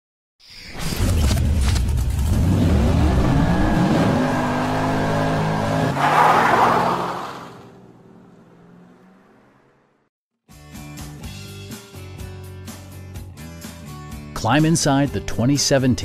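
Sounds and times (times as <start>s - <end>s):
car engine revving: 1.2s - 10.0s.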